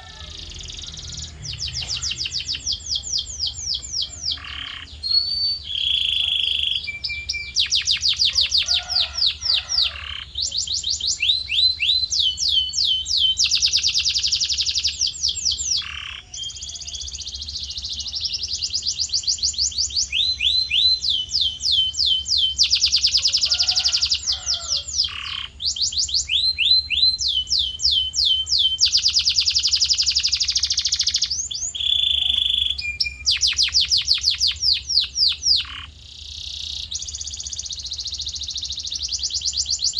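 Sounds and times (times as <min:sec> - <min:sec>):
faint low hum: 0:00.0 - 0:22.5
canary singing trills: 0:00.0 - 0:39.9.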